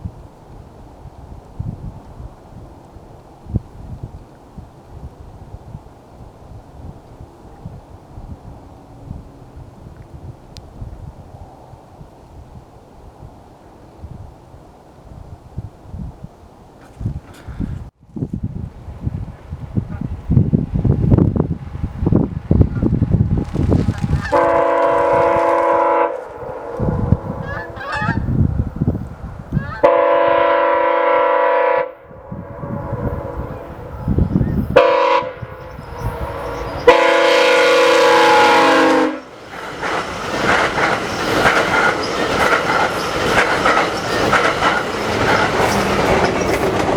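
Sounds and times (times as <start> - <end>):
train rumbling past: 18.5 - 46.9
train air horn: 24.2 - 28.4, 29.6 - 39.4
wheels clattering over rail joints: 39.2 - 46.9.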